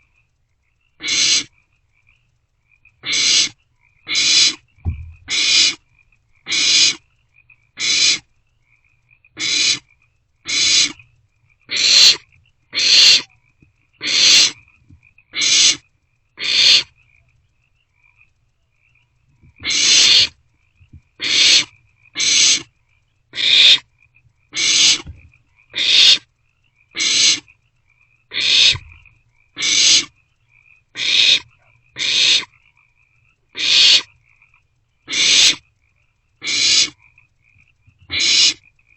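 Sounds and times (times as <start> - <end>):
owlets hissing calls: 1.0 - 1.5, 3.0 - 5.8, 6.5 - 7.0, 7.8 - 8.3, 9.4 - 9.9, 10.5 - 11.0, 11.7 - 13.3, 14.0 - 14.6, 15.4 - 15.8, 16.4 - 16.9, 19.6 - 20.4, 21.2 - 22.7, 23.4 - 23.8, 24.5 - 26.3, 27.0 - 27.5, 28.3 - 29.0, 29.6 - 30.2, 31.0 - 32.5, 33.6 - 34.2, 35.1 - 35.6, 36.4 - 37.0, 38.1 - 38.6.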